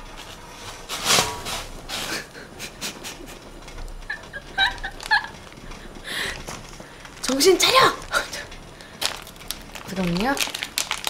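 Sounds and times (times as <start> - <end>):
chewing and crunching food: 8.4 - 11.0.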